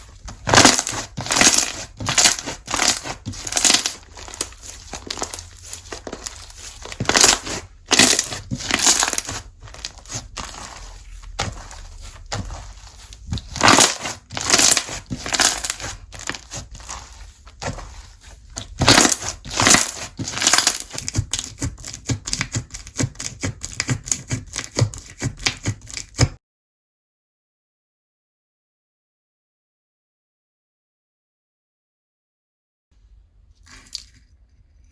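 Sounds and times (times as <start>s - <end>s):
slime squished by hand: 0.1s - 26.4s.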